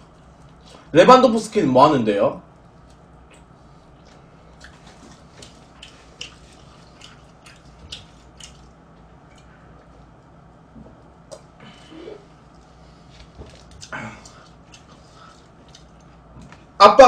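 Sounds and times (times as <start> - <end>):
person chewing crispy food: 2.7 - 9.9, 12.4 - 16.5.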